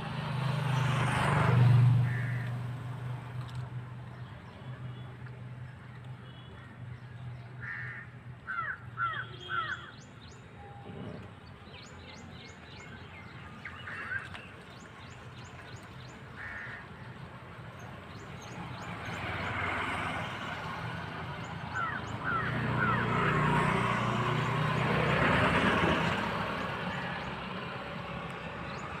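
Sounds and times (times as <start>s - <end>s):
birds calling: 2.0s - 2.5s, 6.2s - 10.6s, 11.3s - 20.6s, 21.2s - 29.0s.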